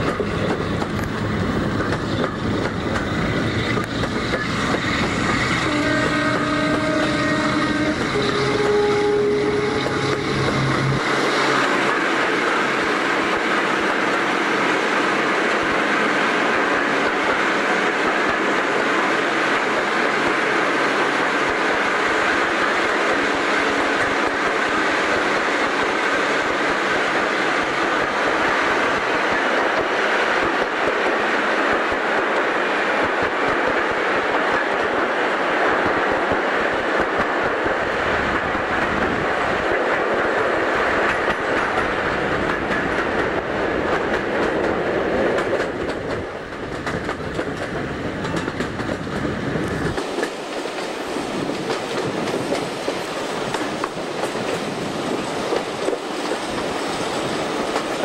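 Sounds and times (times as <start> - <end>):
train rumble and clatter: 0.0 - 58.0
locomotive horn: 5.4 - 11.6.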